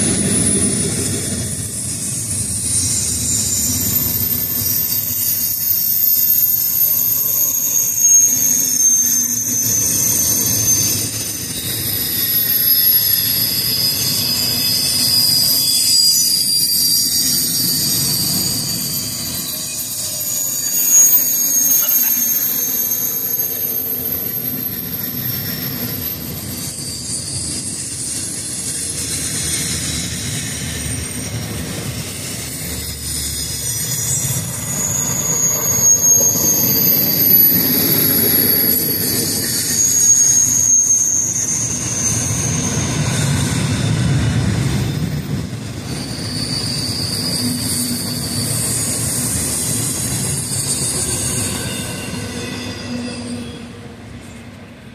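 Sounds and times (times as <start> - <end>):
high-pitched wheel squeals: 0.0 - 54.6
freight cars rolling on rails: 0.0 - 54.9.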